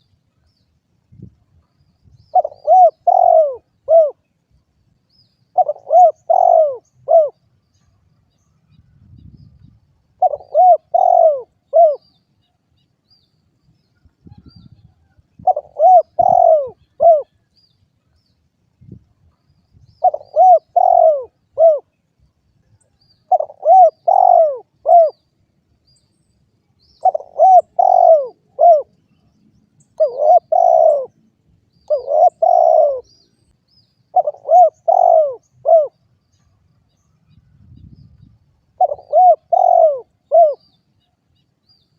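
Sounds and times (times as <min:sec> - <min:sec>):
dove cooing: 0:02.3 - 0:04.3, 0:05.5 - 0:07.4, 0:10.2 - 0:12.1, 0:15.4 - 0:17.4, 0:20.0 - 0:21.9, 0:23.3 - 0:25.2, 0:27.0 - 0:28.9, 0:30.0 - 0:31.2, 0:31.9 - 0:33.2, 0:34.1 - 0:36.0, 0:38.7 - 0:40.6.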